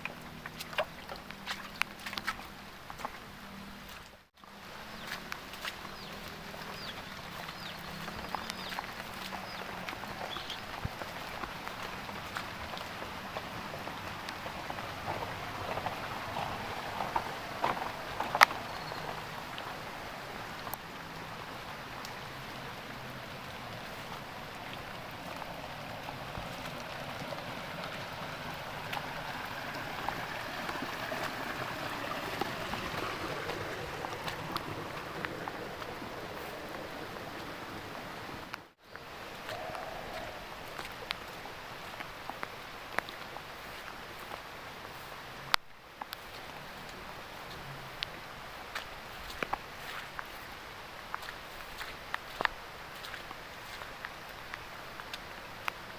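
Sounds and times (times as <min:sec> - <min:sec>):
raindrops tapping close by: 0:00.0 - 0:55.9
sharp drips and splashes: 0:00.0 - 0:55.9
heavy rain falling: 0:04.7 - 0:45.6.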